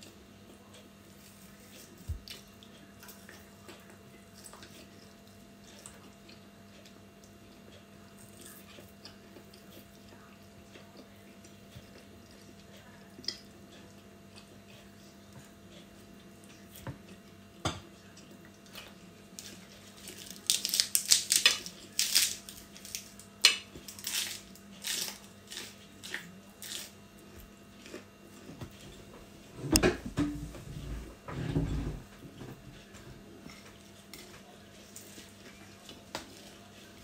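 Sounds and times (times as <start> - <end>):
crunching raw vegetables: 19.4 - 28.4.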